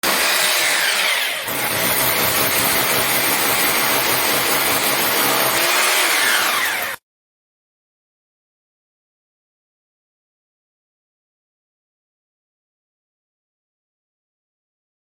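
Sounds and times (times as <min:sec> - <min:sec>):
hammer drill boring into masonry: 0:00.0 - 0:07.0.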